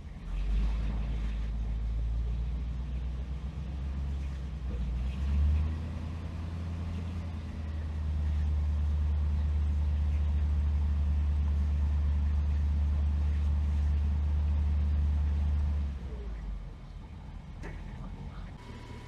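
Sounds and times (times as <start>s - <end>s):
car engine revving: 18.6s - 19.0s.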